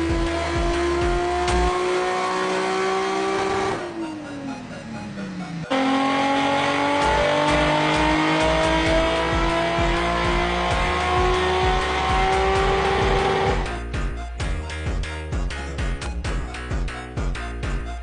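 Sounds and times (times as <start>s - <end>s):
car engine revving under load: 0.0s - 4.2s, 5.3s - 13.7s.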